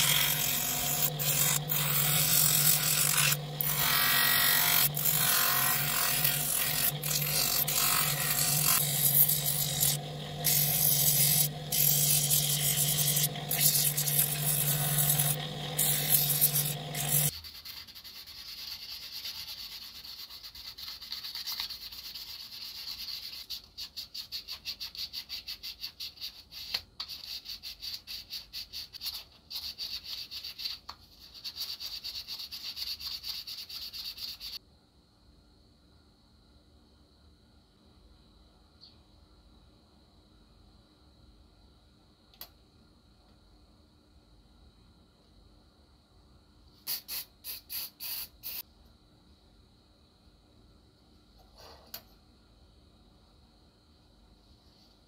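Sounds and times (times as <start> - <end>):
hand filing metal: 0.0 - 17.3
power tool grinding metal: 0.0 - 17.3.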